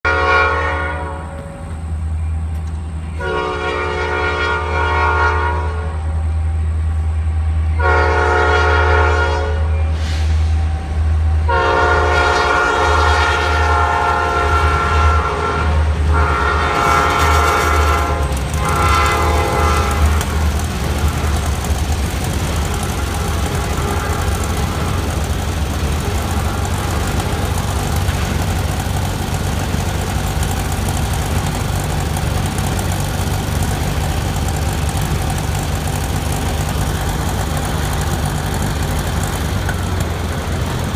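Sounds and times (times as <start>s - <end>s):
locomotive air horn blasts: 0.0s - 1.7s, 3.1s - 6.4s, 7.2s - 21.7s, 22.4s - 28.3s
locomotive rumble: 0.0s - 40.9s
train rolling on rails: 0.0s - 40.9s.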